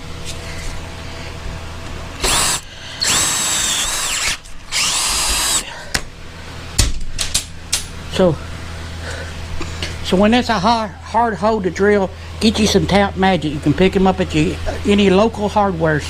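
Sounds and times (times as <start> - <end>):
electric drill whining: 2.2 - 5.7.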